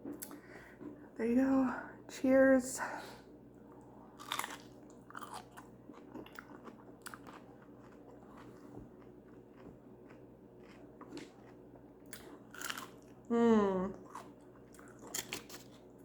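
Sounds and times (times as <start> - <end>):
faint steady hum: 0.0 - 16.0
chewing food: 3.7 - 13.3, 13.9 - 16.0.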